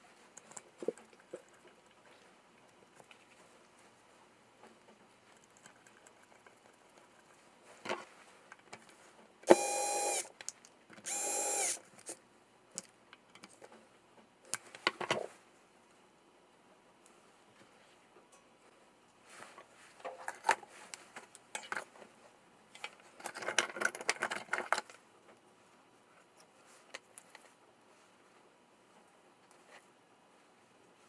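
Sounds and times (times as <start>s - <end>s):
power tool motor running: 9.5s - 10.3s, 11.1s - 11.8s.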